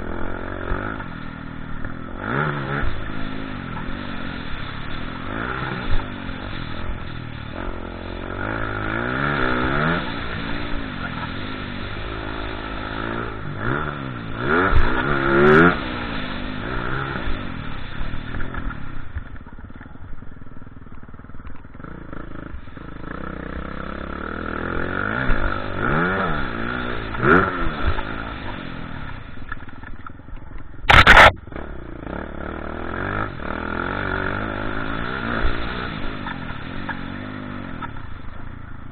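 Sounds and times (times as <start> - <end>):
motocross bike engines revving: 0.0 - 38.9
loud blast of noise: 30.9 - 31.8.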